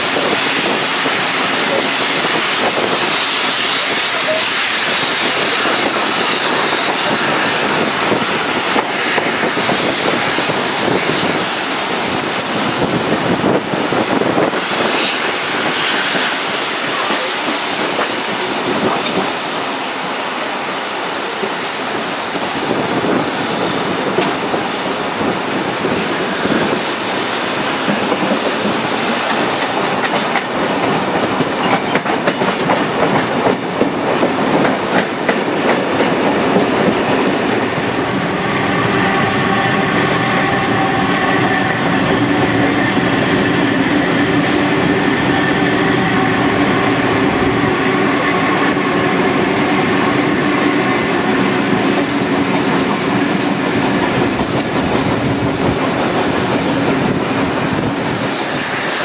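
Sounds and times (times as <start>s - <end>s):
electric train hum: 0.0s - 59.0s
train wheels clattering over rail joints: 27.6s - 40.3s
rushing air: 32.6s - 59.0s.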